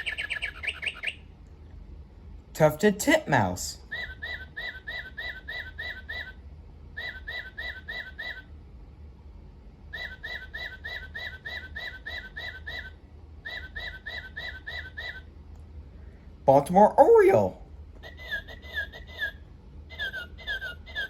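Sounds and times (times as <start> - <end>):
clock playing whistled bird song: 0.0 - 1.2, 3.9 - 6.4, 7.0 - 8.5, 10.0 - 15.2
steady low hum: 0.0 - 21.0.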